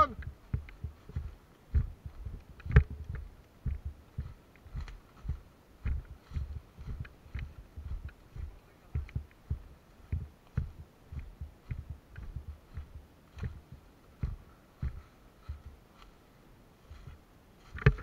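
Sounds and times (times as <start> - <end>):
footsteps thumping: 0.0 - 15.8
gear knocking clicks: 0.2 - 6.2, 6.9 - 15.0.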